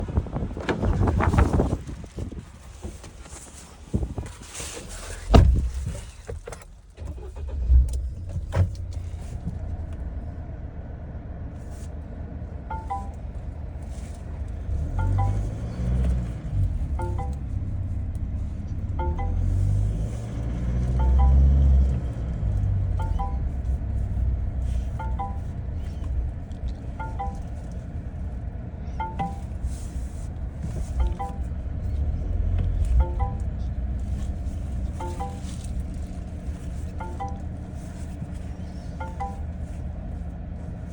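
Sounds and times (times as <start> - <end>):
engine low hum: 0.0 - 40.9
car door thump: 5.2 - 5.9
two-note electronic chime: 12.7 - 13.3, 14.9 - 15.9, 19.0 - 20.1, 20.9 - 22.1, 23.0 - 23.5, 33.0 - 33.7.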